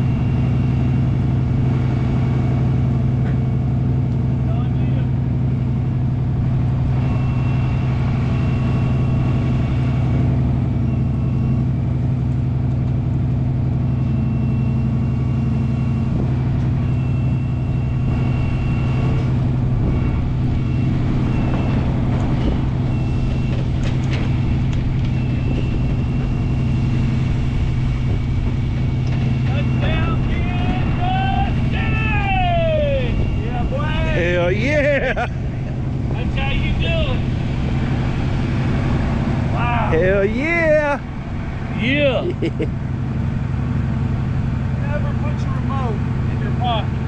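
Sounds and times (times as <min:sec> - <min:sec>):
high whine: 0:00.0 - 0:47.0
truck engine running: 0:00.0 - 0:47.0.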